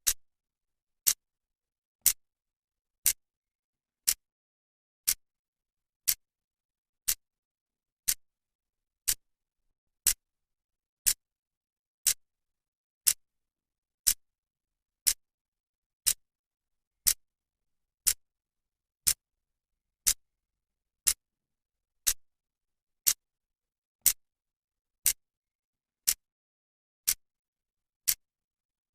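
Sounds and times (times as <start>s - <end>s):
clock ticking: 4.0s - 4.2s, 9.0s - 9.2s.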